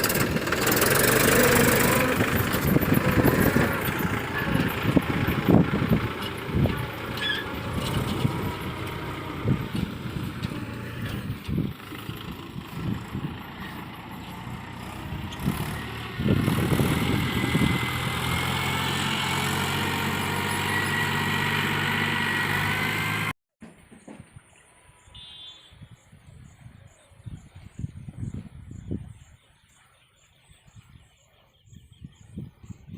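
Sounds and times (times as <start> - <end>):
tractor engine running: 0.0 - 23.3.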